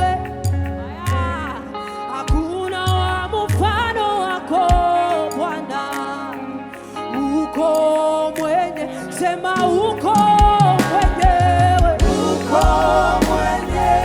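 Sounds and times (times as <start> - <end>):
gospel band playing: 0.0 - 14.0
person singing melody: 4.1 - 14.0
deep bass hits: 12.0 - 14.0.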